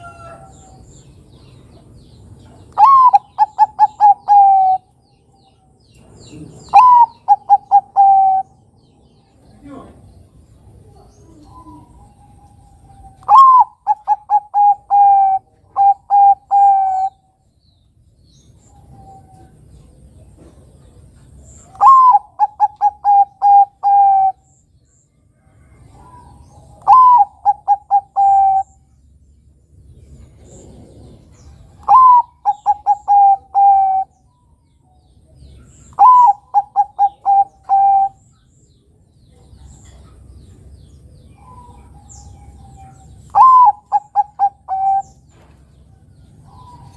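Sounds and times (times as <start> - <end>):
dove cooing: 2.7 - 4.9, 6.3 - 8.7, 10.8 - 17.2, 21.6 - 24.5, 25.8 - 28.9, 30.3 - 34.2, 35.6 - 38.3, 41.4 - 45.4.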